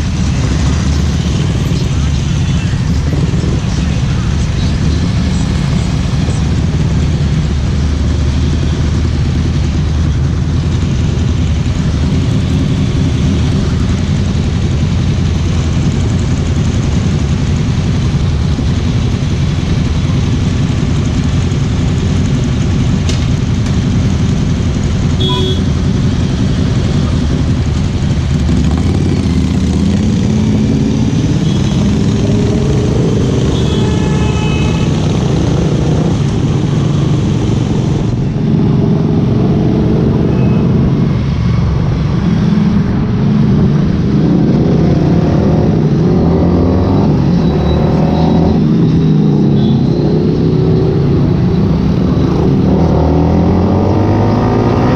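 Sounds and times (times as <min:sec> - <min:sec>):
motorcycle engine droning: 0:00.0 - 0:54.9.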